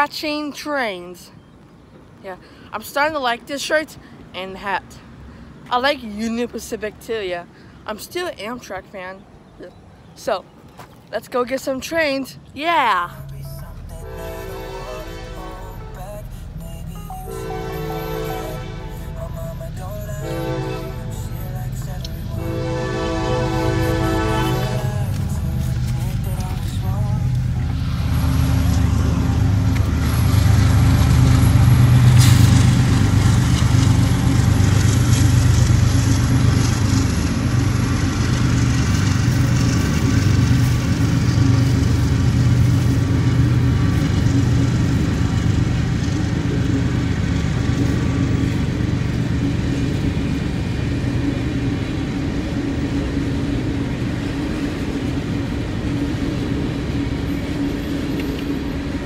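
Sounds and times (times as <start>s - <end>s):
diesel engine drone: 12.0s - 59.0s.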